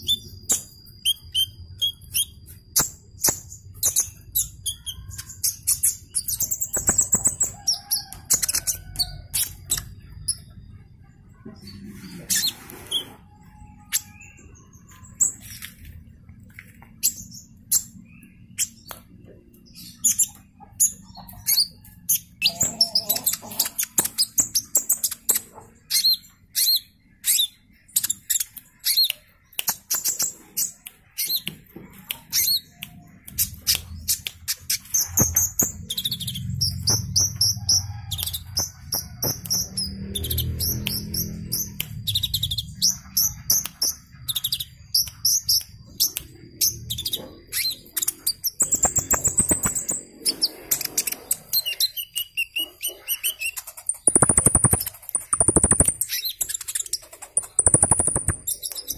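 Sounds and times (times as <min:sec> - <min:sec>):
sunbird singing high chirps: 0:53.4 - 0:58.9.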